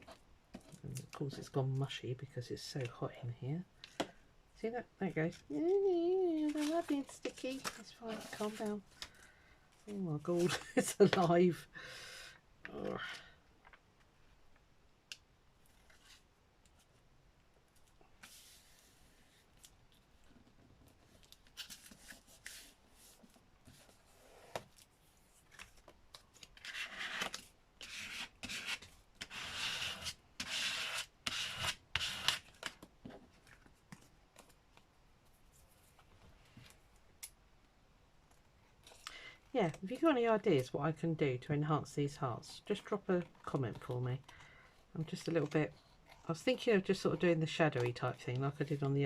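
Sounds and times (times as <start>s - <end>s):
scratchy paper rubbing: 26.6s - 32.4s.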